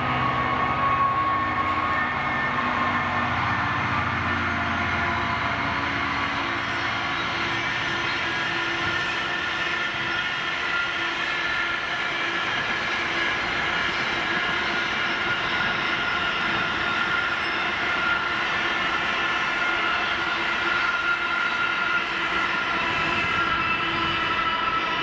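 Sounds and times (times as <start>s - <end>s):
high wheel squeal: 0.0s - 25.0s
train wheels rumbling on rails: 0.0s - 25.0s.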